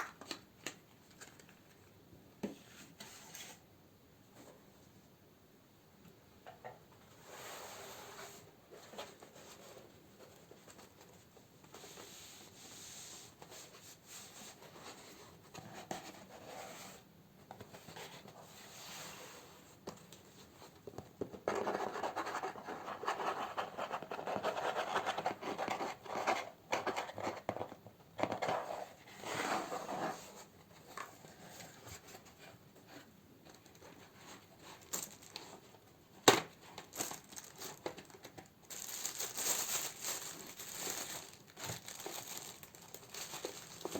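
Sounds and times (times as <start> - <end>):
packaging rustling and crinkling: 33.4 - 43.9.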